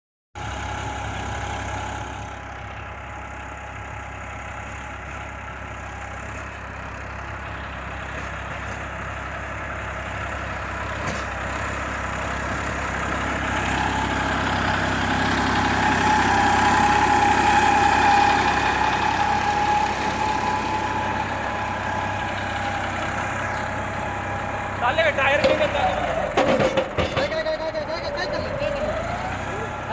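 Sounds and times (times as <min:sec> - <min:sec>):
tractor diesel engine running: 0:00.4 - 0:29.9.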